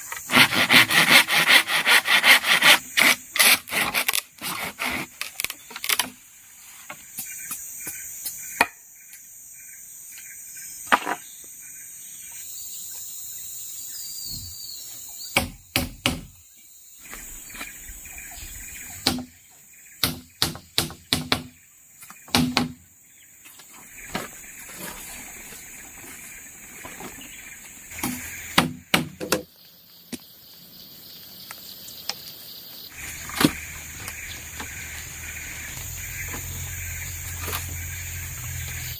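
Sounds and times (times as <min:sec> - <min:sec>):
insect chorus: 0:00.0 - 0:38.9.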